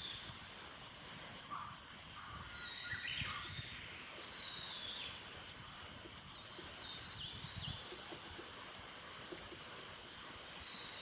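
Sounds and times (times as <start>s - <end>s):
outdoor background noise: 0.0s - 11.0s
wild birds singing: 1.5s - 8.6s, 10.5s - 11.0s.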